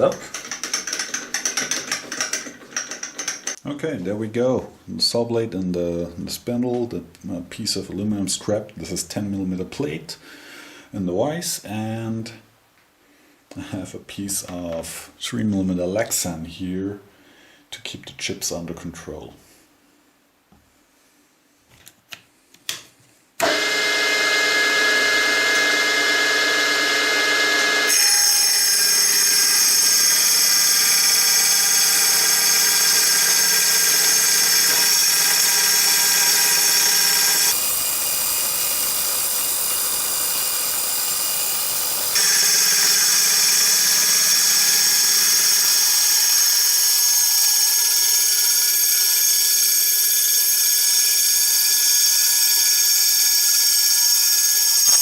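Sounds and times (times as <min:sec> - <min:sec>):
circular saw cutting metal whine: 0:23.4 - 0:55.0.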